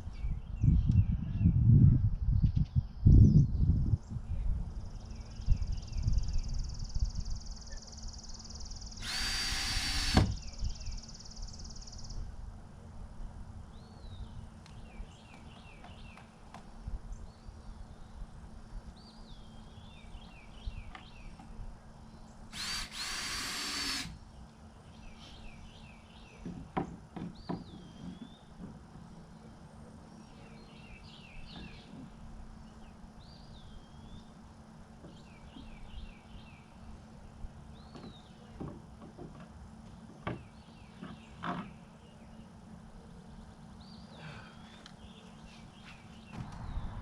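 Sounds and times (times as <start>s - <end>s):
power drill running: 9.0s - 10.5s, 22.5s - 24.2s.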